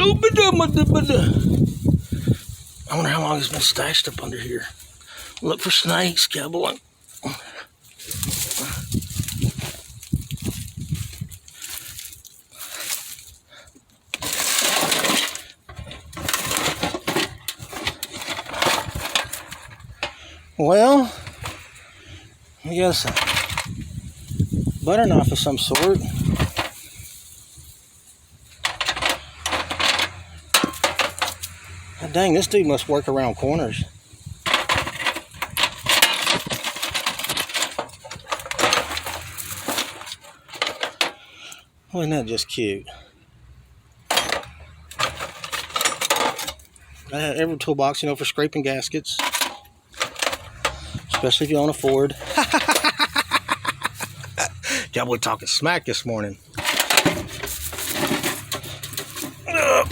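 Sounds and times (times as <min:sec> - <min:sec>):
metal box scraping: 0:00.0 - 0:13.4, 0:14.1 - 0:22.0, 0:22.7 - 0:27.7, 0:28.5 - 0:41.3, 0:44.1 - 0:47.4, 0:49.1 - 0:59.9
metal tools rattling in toolbox: 0:00.0 - 0:20.2, 0:21.0 - 0:21.9, 0:22.8 - 0:27.7, 0:28.4 - 0:32.9, 0:34.2 - 0:41.3, 0:44.1 - 0:47.2, 0:49.0 - 0:55.6, 0:56.4 - 0:59.9
small metal objects clinking: 0:07.0 - 0:20.2, 0:23.0 - 0:32.0, 0:34.1 - 0:41.2, 0:44.1 - 0:47.1, 0:49.2 - 0:54.8, 0:56.4 - 0:59.9.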